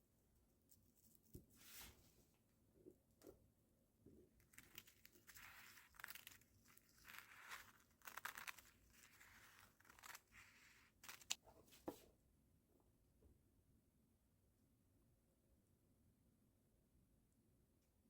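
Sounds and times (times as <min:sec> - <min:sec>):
plastic packaging crinkling: 0:04.5 - 0:11.4.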